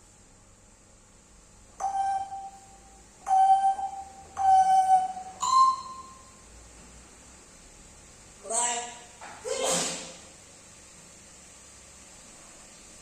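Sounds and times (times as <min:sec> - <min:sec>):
parrot whistling held notes: 0:03.3 - 0:06.3.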